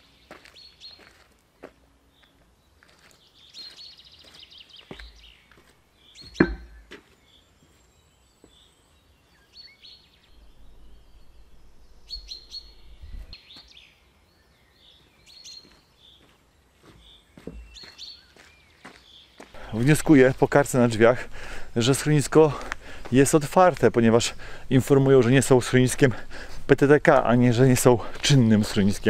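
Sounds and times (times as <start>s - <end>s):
songbirds chirping: 0.0s - 29.0s
sharp knock: 6.3s - 6.8s.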